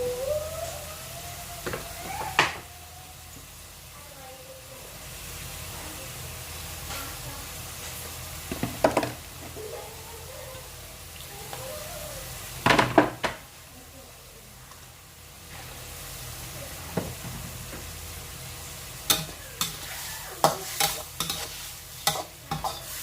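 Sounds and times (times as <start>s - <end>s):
seafood sizzling in a hot pan: 3.3s - 9.8s, 10.6s - 23.0s
spatula scraping a pan: 19.1s - 23.0s.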